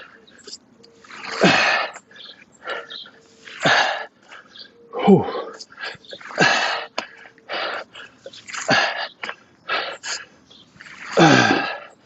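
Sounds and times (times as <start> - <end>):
man breathing hard: 1.4 - 10.5.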